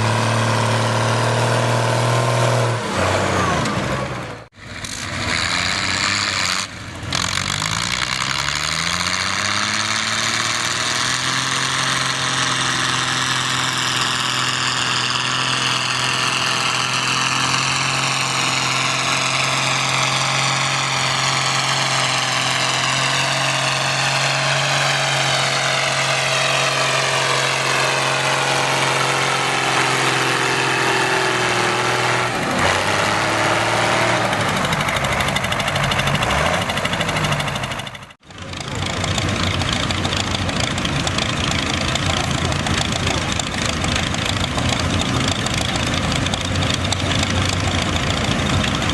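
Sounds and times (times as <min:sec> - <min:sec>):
tractor engine revving under load: 0:00.0 - 0:48.9.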